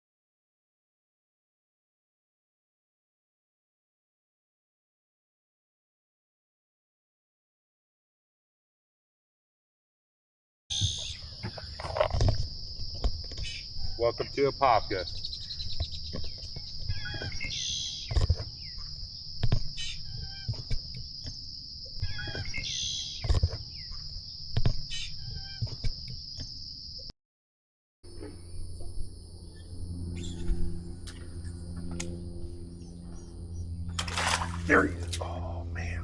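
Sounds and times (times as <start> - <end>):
high-pitched insect chorus: 10.9 - 27.0
low motor hum: 28.1 - 36.0
birds calling: 30.2 - 36.0.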